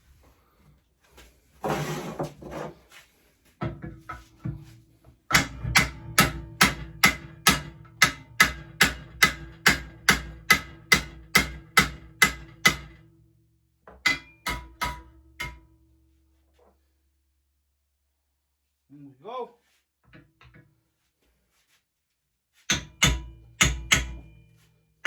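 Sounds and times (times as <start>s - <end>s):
hammer striking metal: 5.3s - 13.0s, 14.0s - 15.8s, 22.7s - 24.6s.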